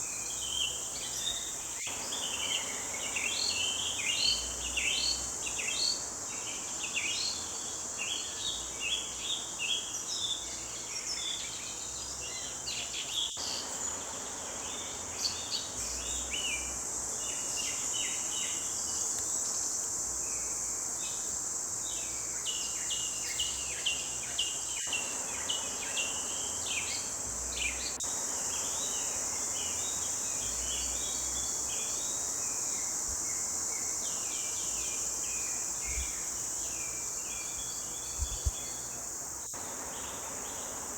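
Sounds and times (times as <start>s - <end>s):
high-pitched insect drone: 13.4s - 40.9s.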